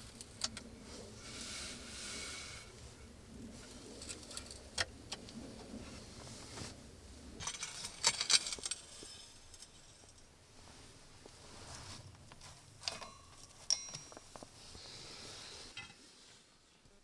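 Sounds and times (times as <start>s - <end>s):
jingling clinks and rattles: 12.8s - 14.4s.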